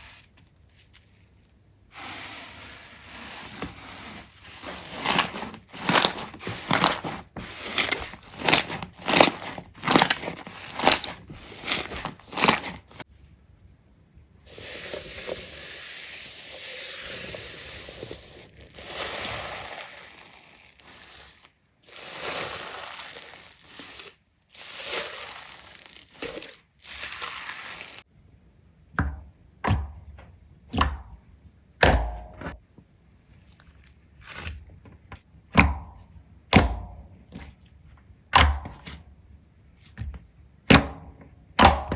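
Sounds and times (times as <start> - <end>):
slime crunching: 4.7 - 13.0, 18.5 - 28.0.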